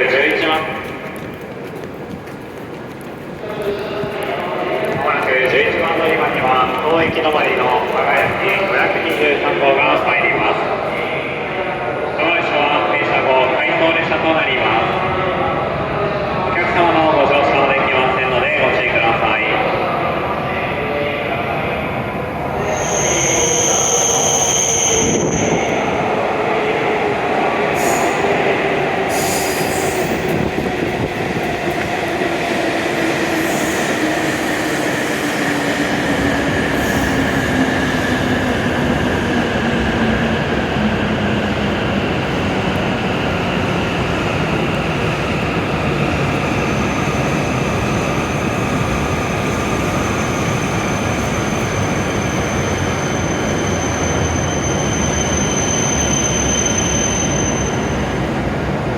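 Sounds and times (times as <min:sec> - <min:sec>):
train wheels rushing: 0:00.0 - 0:11.8, 0:22.4 - 0:58.9
train braking whine: 0:22.6 - 0:26.2, 0:27.6 - 0:30.5, 0:49.0 - 0:58.3.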